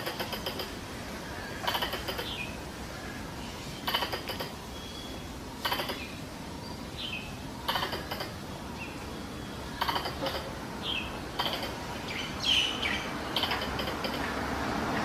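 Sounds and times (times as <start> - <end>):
squirrel chattering rattle: 0.0 - 0.8, 1.6 - 2.5, 3.8 - 4.6, 5.6 - 6.2, 7.7 - 8.4, 9.7 - 10.6, 11.3 - 11.9, 13.1 - 14.4.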